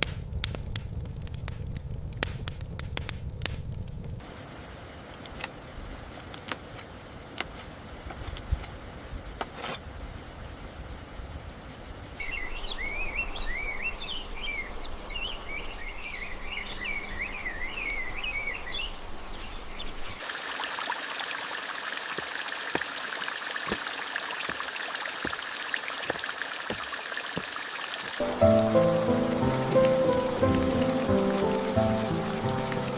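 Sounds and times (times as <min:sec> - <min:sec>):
steady rush of water: 0:04.2 - 0:32.9
birds twittering: 0:12.2 - 0:20.2.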